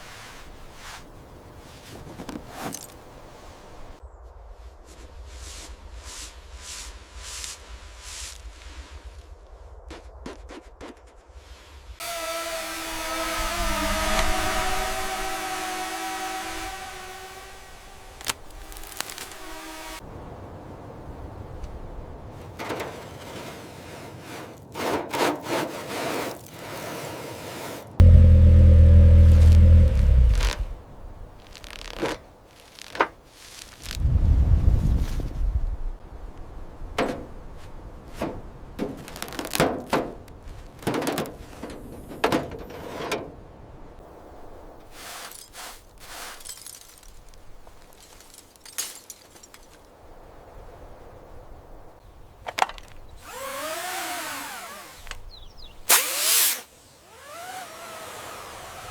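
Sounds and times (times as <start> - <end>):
low mechanical drone: 12.0 - 19.6, 28.0 - 31.1
rattling scrapes of parts: 44.9 - 49.8.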